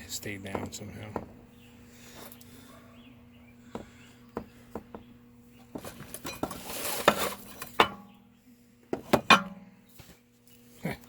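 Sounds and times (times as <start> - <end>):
rattling scrape: 5.8 - 7.9.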